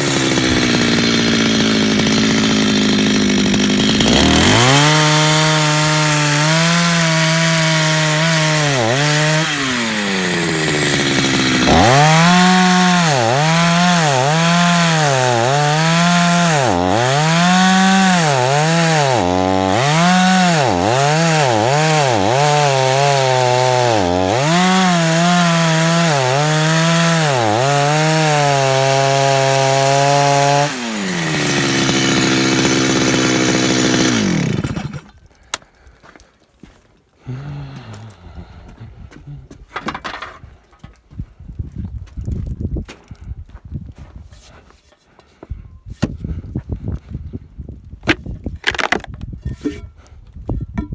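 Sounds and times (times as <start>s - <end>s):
chainsaw cutting log: 0.0s - 35.6s, 48.1s - 49.4s.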